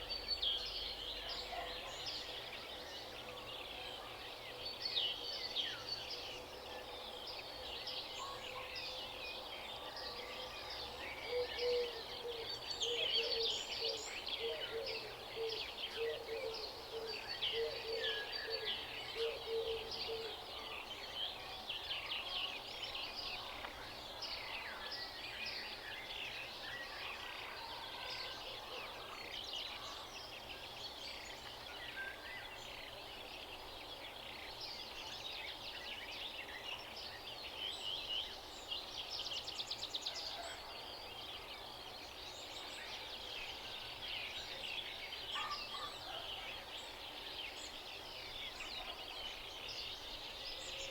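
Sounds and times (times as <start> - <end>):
songbirds chorus: 0.0 - 50.9.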